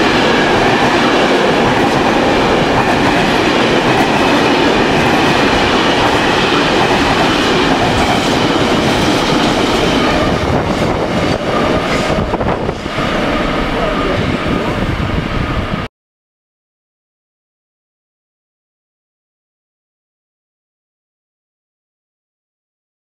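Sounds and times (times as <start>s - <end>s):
freight train wheels on rails: 0.0s - 15.9s.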